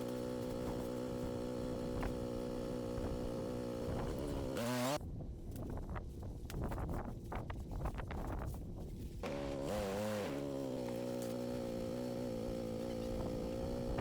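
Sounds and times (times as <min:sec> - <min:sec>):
engine idling and revving: 0:00.0 - 0:05.0, 0:09.2 - 0:14.0.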